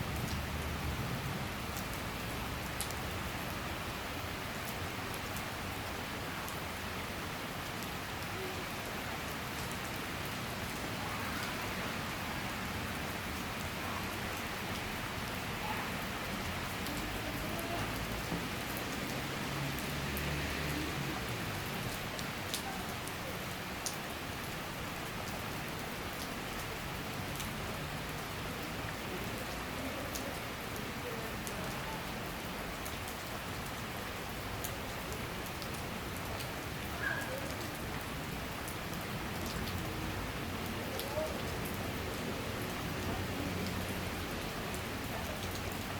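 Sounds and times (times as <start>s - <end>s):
rain falling steadily: 0.0s - 45.9s
raindrops ticking: 16.3s - 45.9s.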